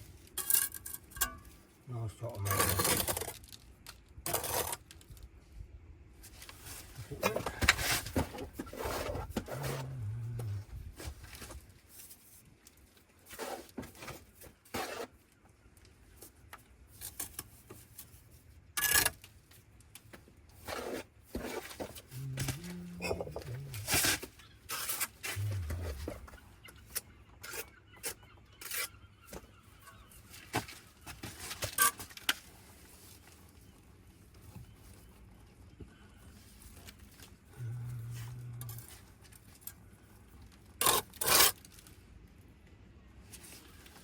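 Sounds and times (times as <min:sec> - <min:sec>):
trowel scraping mortar: 0:14.7 - 0:15.1.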